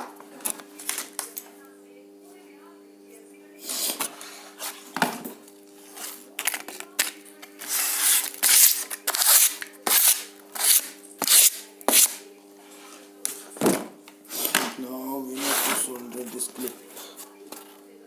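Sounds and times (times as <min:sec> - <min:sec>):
hand tool scraping wire: 0:07.6 - 0:12.2.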